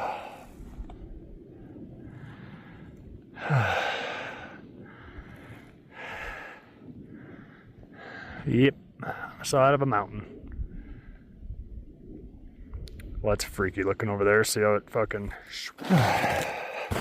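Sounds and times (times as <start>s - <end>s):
man breathing heavily: 0.0s - 0.8s, 1.6s - 9.4s, 15.8s - 17.0s.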